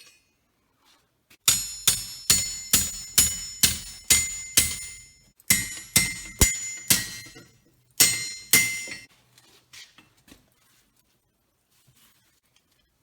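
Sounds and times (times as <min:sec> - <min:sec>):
hammer ringing on anvil: 0:01.5 - 0:09.1.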